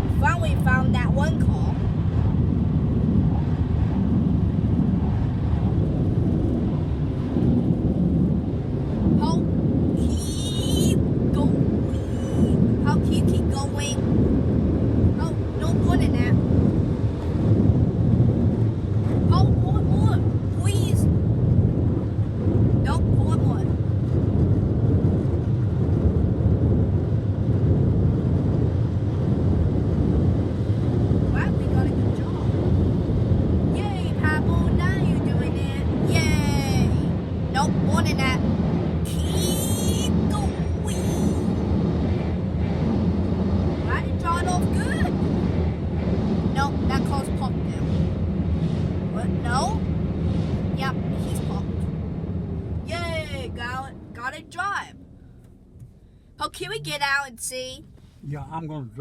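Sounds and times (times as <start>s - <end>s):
low rumbling roar: 0.0s - 57.0s.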